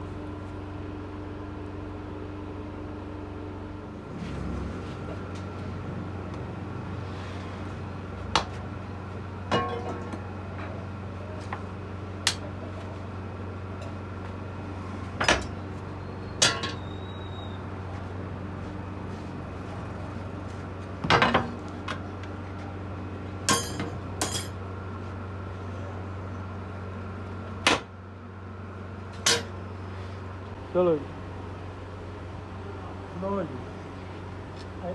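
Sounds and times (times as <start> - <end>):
steady low hum: 0.0 - 34.9
metal tools clinking: 23.5 - 24.6.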